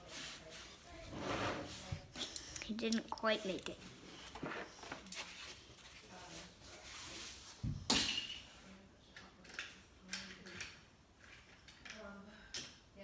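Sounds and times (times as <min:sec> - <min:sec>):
toy cars clicking and knocking: 0:09.2 - 0:12.8.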